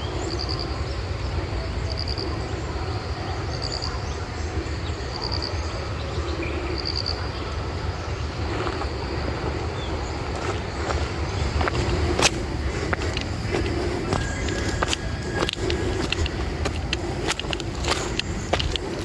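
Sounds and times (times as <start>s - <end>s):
steady low rumble: 0.0s - 19.0s
faint clicks: 11.8s - 19.0s.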